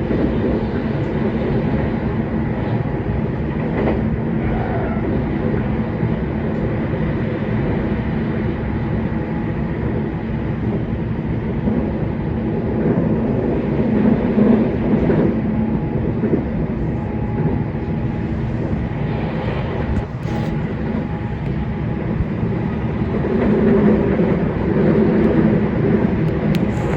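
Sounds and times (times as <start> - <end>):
train wheels rumbling on rail: 0.0 - 26.9
train motor hum: 15.8 - 26.9.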